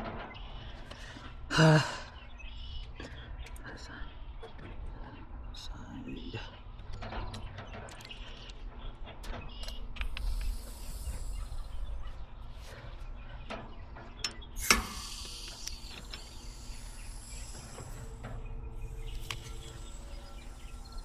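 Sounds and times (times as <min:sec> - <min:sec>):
tools clicking and rattling: 0:06.8 - 0:21.0
gas hiss: 0:10.0 - 0:12.7, 0:14.6 - 0:21.0.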